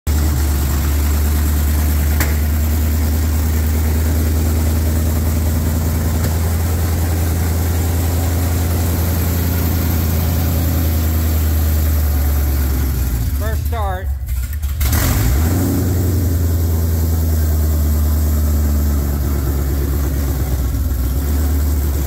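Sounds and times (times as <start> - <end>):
engine idling: 0.1 - 22.0.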